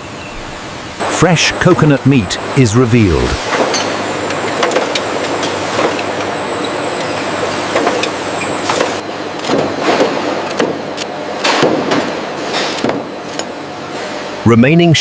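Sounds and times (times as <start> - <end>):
thin high whine: 1.0 - 4.0
machinery running: 1.0 - 11.4.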